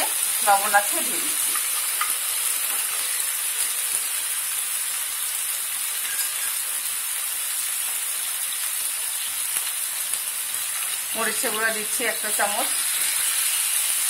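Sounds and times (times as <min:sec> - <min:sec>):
meat and onions sizzling in pan: 0:00.0 - 0:14.0.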